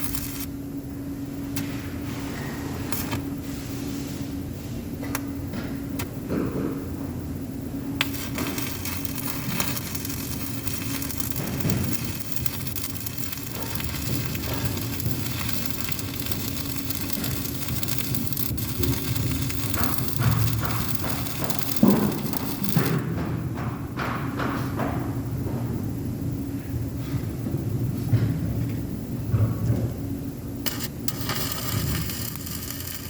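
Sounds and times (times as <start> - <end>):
welding arc crackling: 0.0 - 0.6, 2.9 - 3.4, 7.9 - 23.2, 30.6 - 33.0
low steady hum: 0.0 - 33.0.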